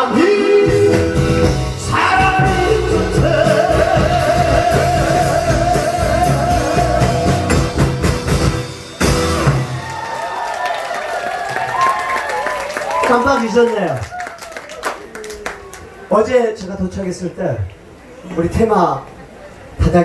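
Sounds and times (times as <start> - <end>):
man singing: 0.0 - 8.0
backing track with drum beat: 0.0 - 10.4.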